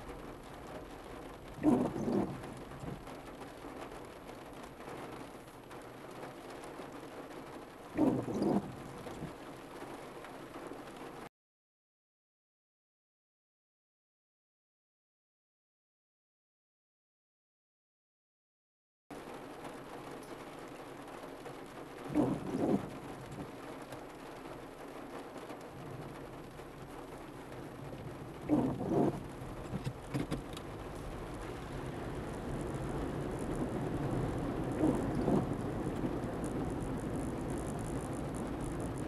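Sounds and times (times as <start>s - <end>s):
heavy rain on car roof: 0.0s - 11.3s, 19.1s - 39.0s.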